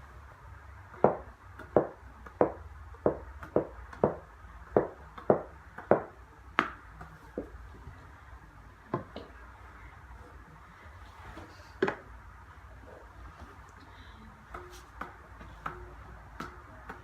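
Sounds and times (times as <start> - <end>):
racket hitting tennis ball: 14.5 - 17.0.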